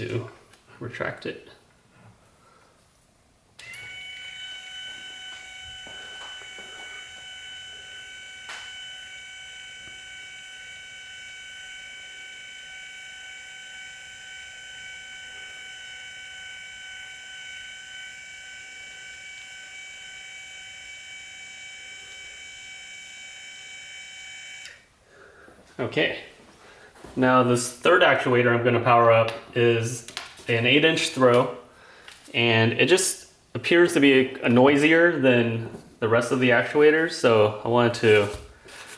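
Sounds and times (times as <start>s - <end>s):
linear actuator motor whine: 3.6s - 24.9s.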